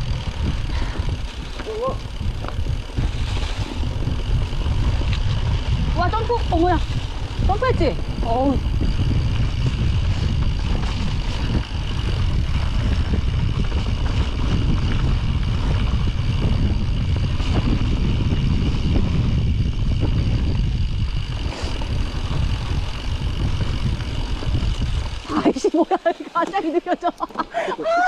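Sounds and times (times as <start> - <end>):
bike rattles and ticks: 0.0 - 28.0
bike tyre rumble: 0.0 - 28.0
wind rushing over microphone: 0.0 - 28.0.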